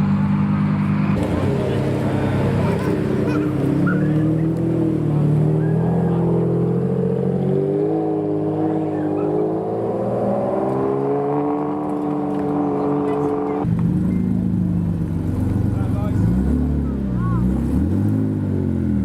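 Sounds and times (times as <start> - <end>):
car engine at low revs: 0.0 - 19.0.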